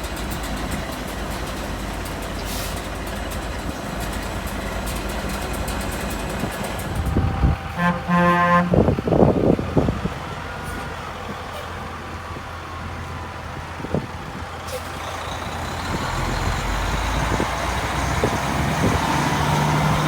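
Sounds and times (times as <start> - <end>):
diesel truck engine rumbling: 0.0 - 20.0
truck horn toot: 7.2 - 9.2.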